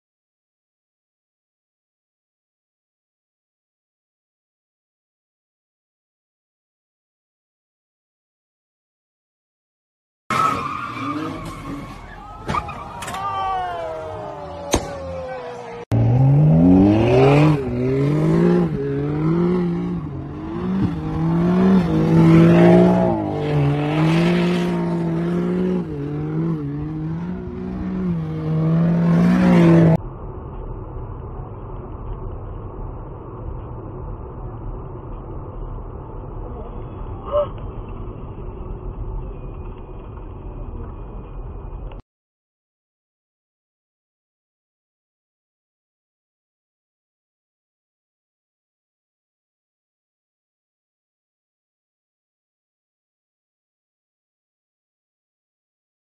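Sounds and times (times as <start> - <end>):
muffled road noise hum: 10.3 - 42.0
car engine revving: 15.1 - 36.4
car engine at high revs: 15.9 - 30.0.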